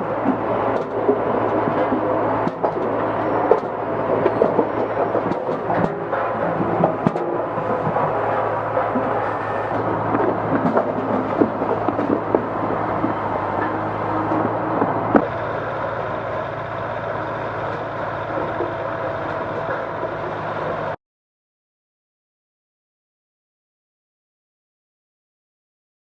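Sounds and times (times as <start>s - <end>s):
knocks and clatter: 0.0s - 15.4s.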